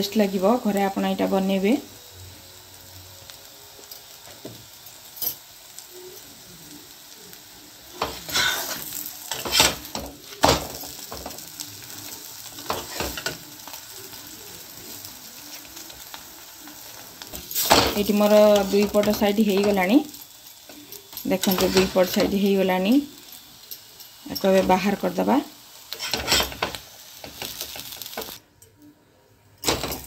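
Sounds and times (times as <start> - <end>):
food sizzling in oil: 0.0 - 28.5, 29.7 - 30.0
metal spatula scraping pan: 8.2 - 9.9, 21.4 - 22.4, 25.9 - 26.8.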